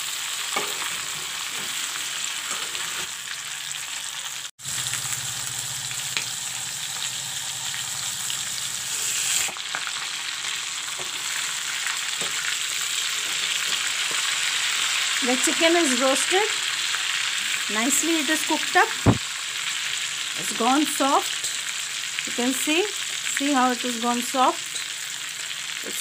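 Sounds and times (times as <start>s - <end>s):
chicken sizzling in hot oil: 0.0s - 26.0s
metal spatula scraping pan: 0.6s - 3.2s.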